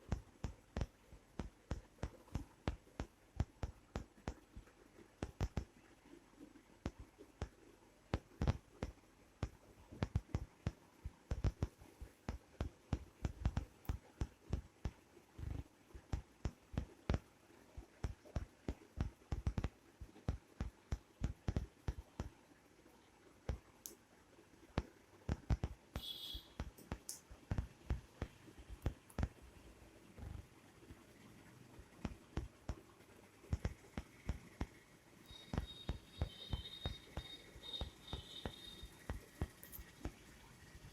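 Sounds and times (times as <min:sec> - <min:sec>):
soft thumps and taps of play-fighting: 0:33.5 - 0:34.8.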